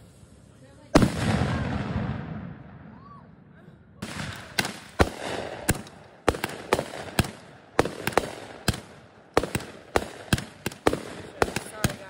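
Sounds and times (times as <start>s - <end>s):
steady hiss: 0.0s - 1.0s
firework bangs: 0.9s - 3.1s, 4.0s - 12.0s.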